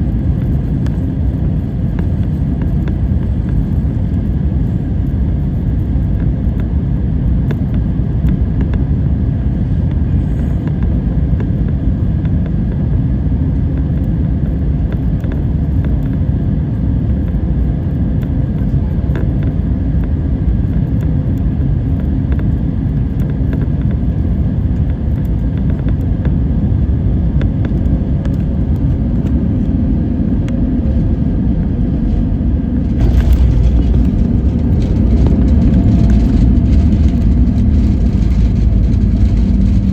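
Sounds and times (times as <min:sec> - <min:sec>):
faint engine tones: 0:00.0 - 0:12.7, 0:27.3 - 0:39.9
jet airliner rumble: 0:00.0 - 0:39.9.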